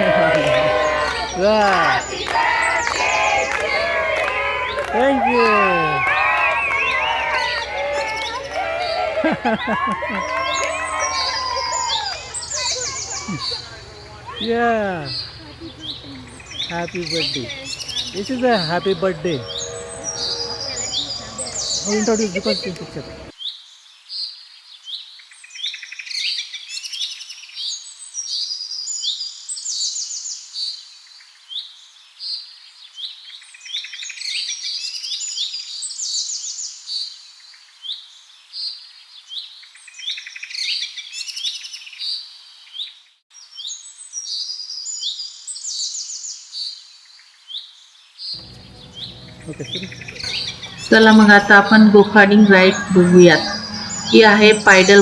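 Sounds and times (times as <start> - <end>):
birds chirping and singing: 4.6 - 23.3, 48.4 - 55.0.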